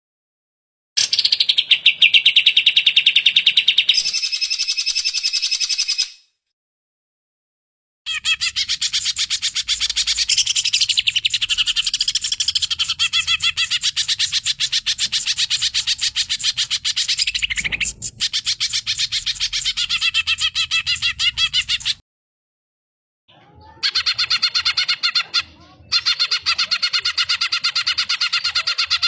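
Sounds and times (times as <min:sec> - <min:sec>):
bird chattering trill: 0:08.1 - 0:22.0.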